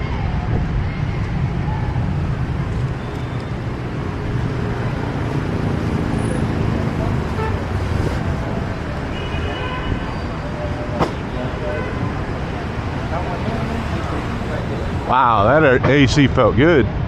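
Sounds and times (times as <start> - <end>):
motorbike and car engines: 1.1 - 16.0
vehicle horn: 7.1 - 12.4.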